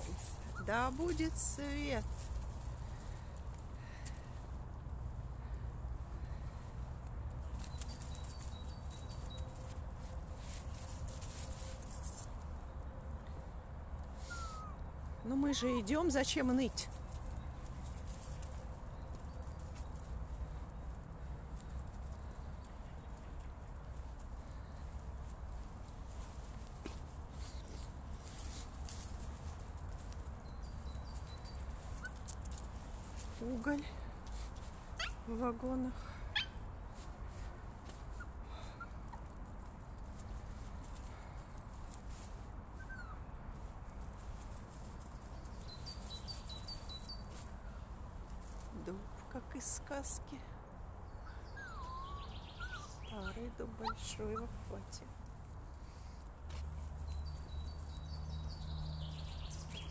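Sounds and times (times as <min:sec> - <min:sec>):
faint bird chirps: 0:51.1 - 0:54.0.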